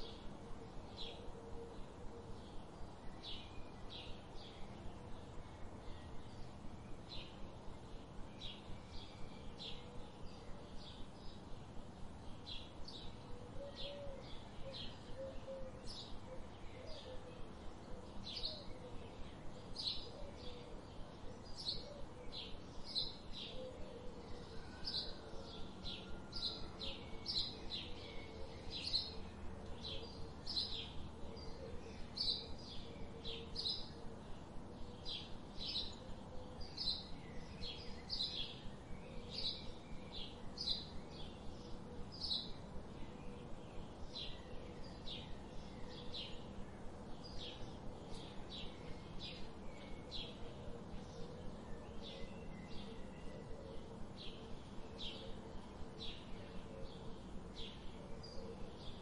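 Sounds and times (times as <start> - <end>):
bird chirping: 12.2 - 59.0.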